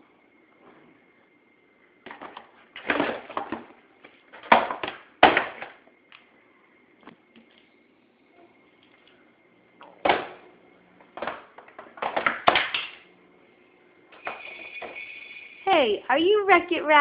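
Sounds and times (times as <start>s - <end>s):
faint steady high tone: 6.3s - 9.8s, 13.2s - 17.0s.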